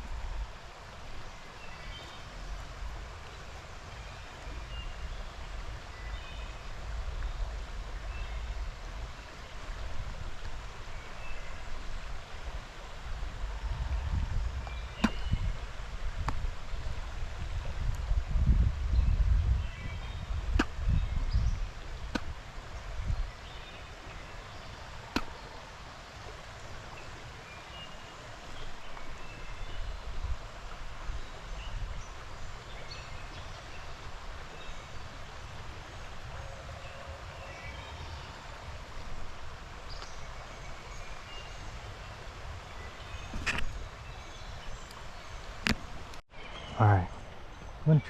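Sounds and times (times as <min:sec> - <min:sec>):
creek rushing: 0:00.0 - 0:48.0
birds chirping: 0:03.2 - 0:09.7, 0:13.5 - 0:16.2, 0:39.8 - 0:48.0
microphone rumble: 0:13.1 - 0:23.2.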